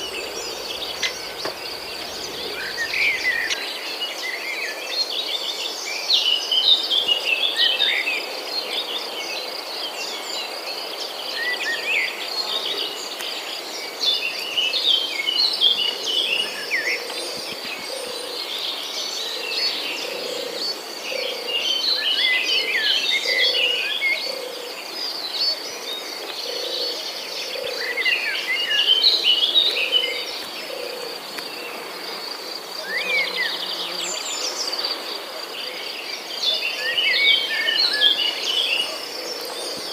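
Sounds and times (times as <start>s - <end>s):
small birds chirping: 0.0s - 3.6s
high insect trill: 0.0s - 3.7s.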